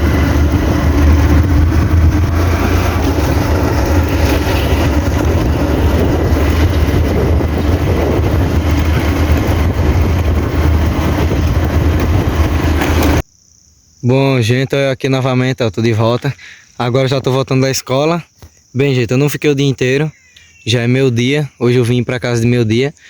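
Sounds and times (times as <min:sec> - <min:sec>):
motorcycle engine hum: 0:00.0 - 0:13.2
wind and road noise: 0:00.0 - 0:13.3.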